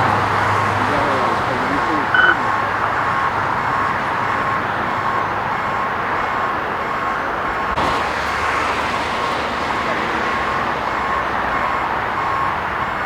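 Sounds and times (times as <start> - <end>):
reverse warning beeper: 0.0 - 2.6
vehicle engines running: 0.0 - 13.0.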